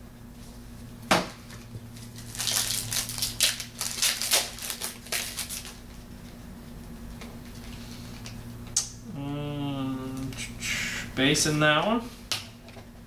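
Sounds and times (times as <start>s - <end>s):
card pack wrapper tearing: 2.0s - 5.8s
wrapper rustling and crackling: 2.0s - 5.8s.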